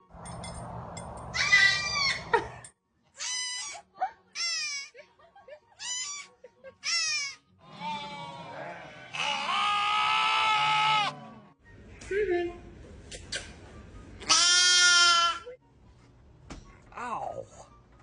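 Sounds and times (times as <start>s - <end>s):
goat bleating: 7.6s - 11.2s, 14.3s - 15.4s.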